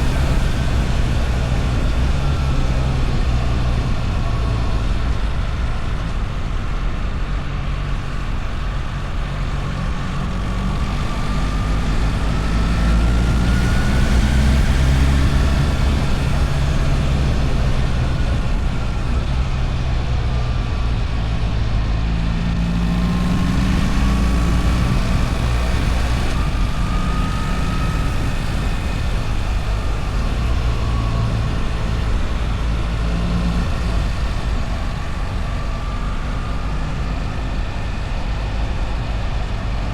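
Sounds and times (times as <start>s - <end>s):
motorcycle engine revving: 22.1s - 36.0s.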